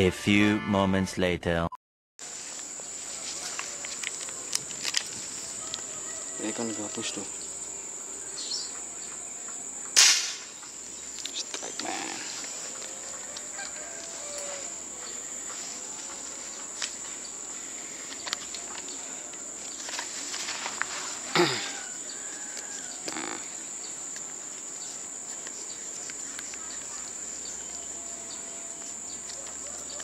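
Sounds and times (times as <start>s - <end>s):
high-pitched insect drone: 2.4s - 30.0s
falling animal call: 21.2s - 23.6s.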